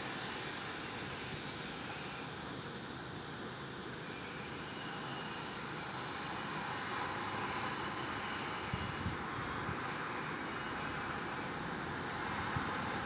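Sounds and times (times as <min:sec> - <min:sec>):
steady rushing city noise: 0:05.6 - 0:13.0.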